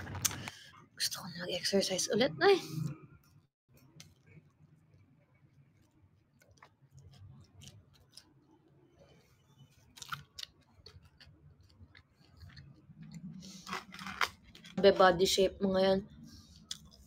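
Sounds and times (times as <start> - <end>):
soft chewing: 2.8 - 14.8, 16.1 - 17.0.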